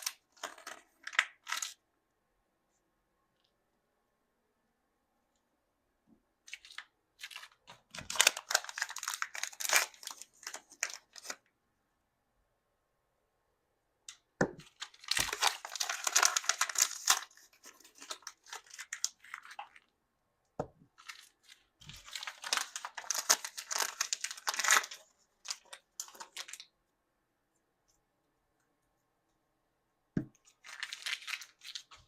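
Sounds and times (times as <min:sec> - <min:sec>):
plastic wrapping crinkling: 0:00.0 - 0:01.8, 0:06.5 - 0:11.4, 0:14.6 - 0:19.9, 0:20.9 - 0:26.7, 0:30.4 - 0:32.0.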